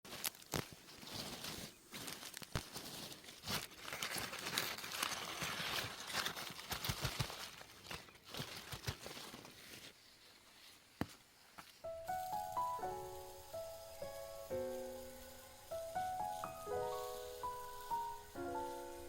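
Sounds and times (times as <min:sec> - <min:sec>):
rustling and crinkling: 0:00.0 - 0:19.0.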